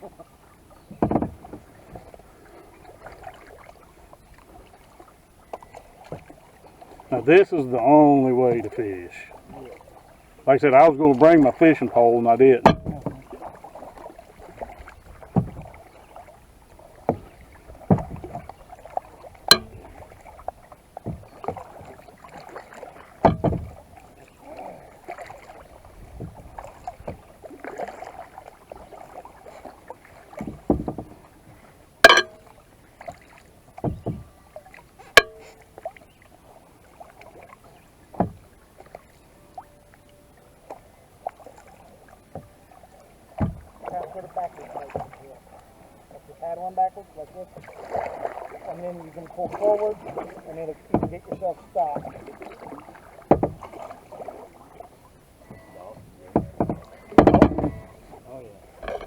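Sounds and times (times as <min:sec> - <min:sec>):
paddle splashing in water: 0:00.0 - 0:59.0
sharp knocks: 0:12.6 - 0:13.2, 0:19.5 - 0:19.9, 0:23.2 - 0:23.8, 0:32.0 - 0:32.4, 0:35.2 - 0:35.5, 0:56.4 - 0:57.9, 0:58.8 - 0:59.0.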